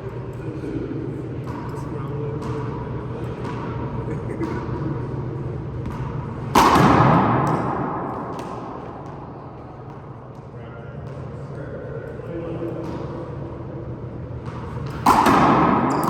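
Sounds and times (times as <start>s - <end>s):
ball slapping hands and wall: 5.9s - 9.3s, 14.9s - 16.0s.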